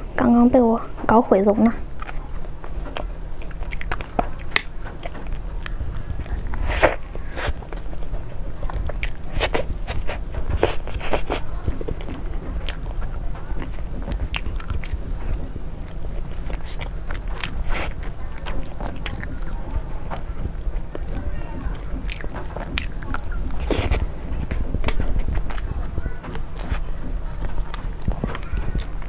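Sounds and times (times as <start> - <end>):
steady low hum: 0.0 - 29.0
person biting and chewing food: 2.9 - 8.1, 8.7 - 20.9, 22.0 - 25.7.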